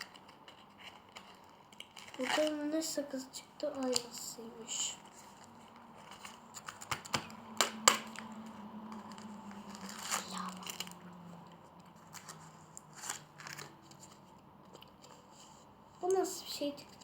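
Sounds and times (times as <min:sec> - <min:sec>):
plastic wrapper tearing and crinkling: 0:00.0 - 0:02.8, 0:03.7 - 0:04.3, 0:05.4 - 0:11.1, 0:12.0 - 0:14.0.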